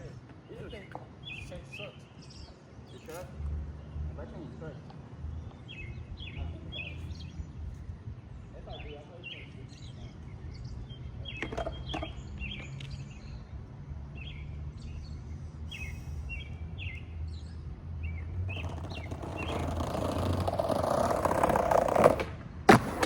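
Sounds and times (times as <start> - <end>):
small birds chirping: 0.1 - 22.2
skateboard wheels rolling on pavement: 11.3 - 13.2, 18.3 - 23.0.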